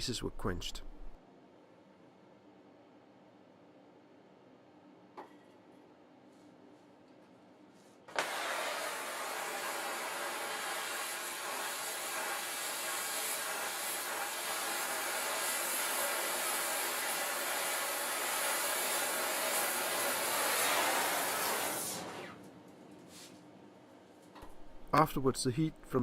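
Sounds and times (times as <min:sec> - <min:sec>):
forge rushing hiss: 0:08.1 - 0:22.3.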